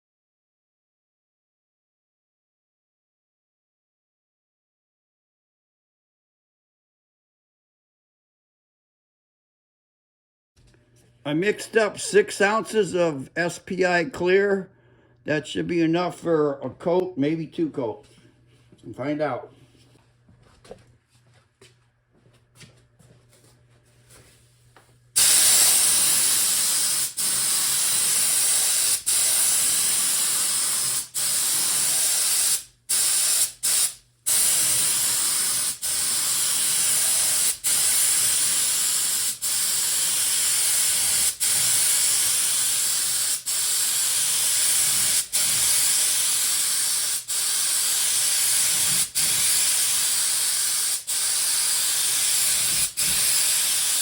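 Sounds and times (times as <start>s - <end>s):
paint spray gun hissing: 25.2s - 54.0s.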